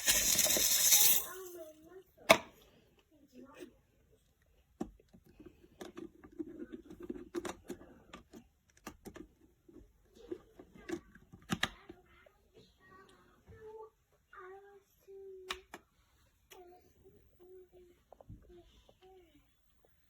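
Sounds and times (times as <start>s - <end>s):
kettle parts clicking and knocking: 0.0s - 1.3s.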